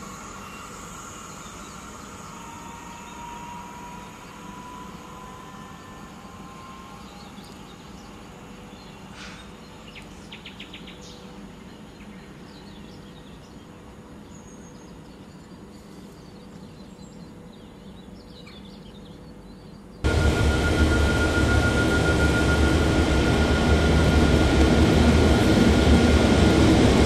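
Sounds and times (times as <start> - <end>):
low background rumble: 11.1 - 27.0.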